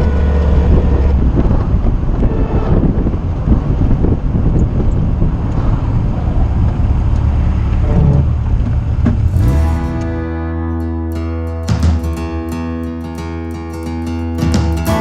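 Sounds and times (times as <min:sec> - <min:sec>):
car engine running: 0:00.0 - 0:10.8
road and wind noise: 0:00.0 - 0:11.2.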